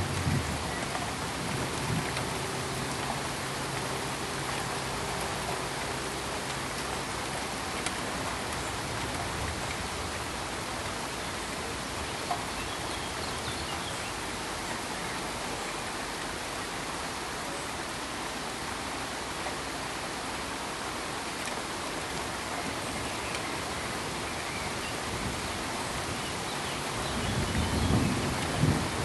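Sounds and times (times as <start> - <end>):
pink noise hiss: 0.0 - 29.0
faint clicks: 7.8 - 9.8.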